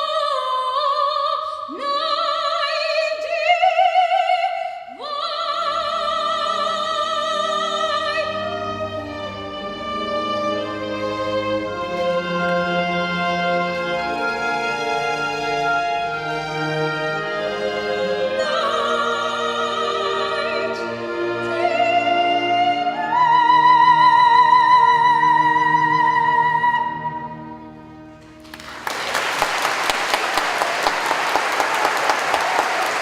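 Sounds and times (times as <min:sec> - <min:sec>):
operatic singer with vibrato: 0:00.0 - 0:14.4, 0:17.2 - 0:27.7
instrumental accompaniment: 0:07.8 - 0:30.6
audience applause: 0:28.4 - 0:33.0.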